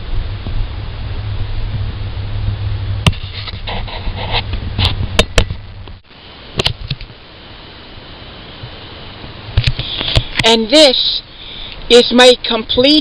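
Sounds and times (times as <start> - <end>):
steady low hum: 0.0 - 13.0
sharp clicks and knocks: 4.4 - 6.0, 6.6 - 7.2.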